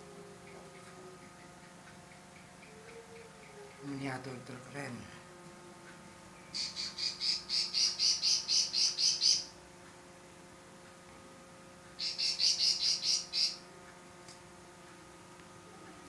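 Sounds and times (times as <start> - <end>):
bird chirping: 6.4 - 9.5, 12.0 - 13.6.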